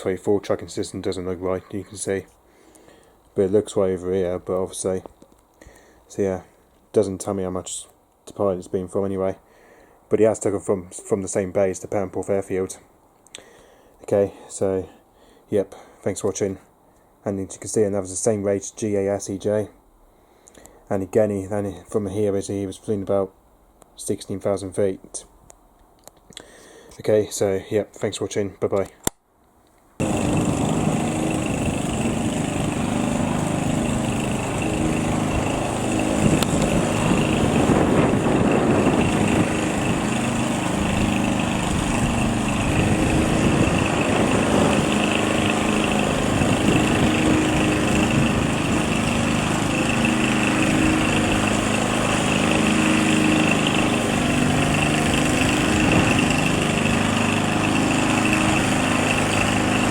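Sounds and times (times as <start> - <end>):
small piston engine running: 30.0 - 59.9.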